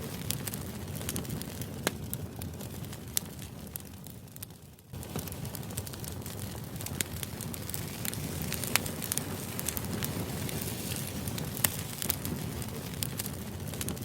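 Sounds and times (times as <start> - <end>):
fire pops and crackles: 0.0 - 14.0.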